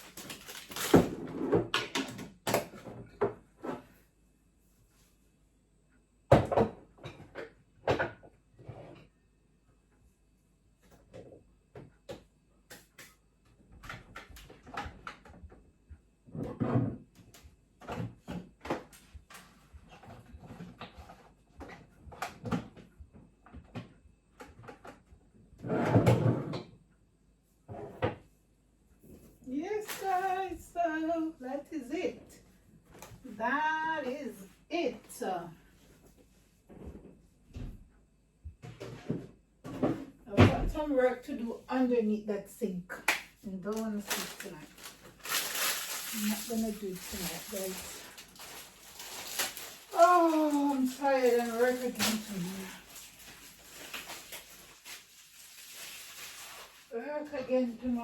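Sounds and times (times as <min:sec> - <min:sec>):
kitchen items knocking and clunking: 0:00.0 - 0:03.9, 0:06.3 - 0:08.4, 0:43.7 - 0:58.0.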